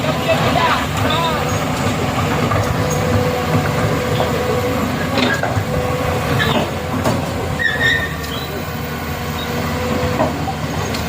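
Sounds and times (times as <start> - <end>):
heavy vehicle engine running: 0.0 - 11.0
short squeaks and clicks: 7.6 - 8.6.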